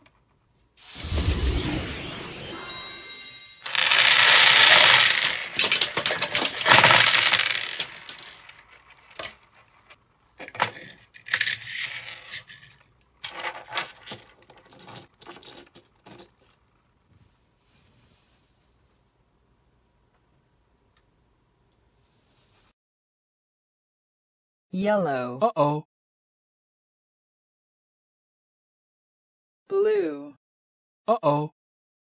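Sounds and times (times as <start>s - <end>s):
plastic balls clattering on table: 3.6s - 16.6s.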